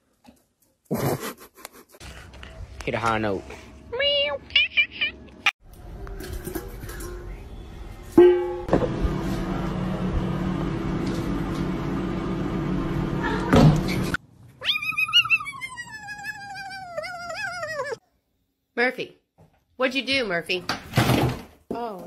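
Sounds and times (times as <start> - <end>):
cat yowling: 14.6 - 18.0.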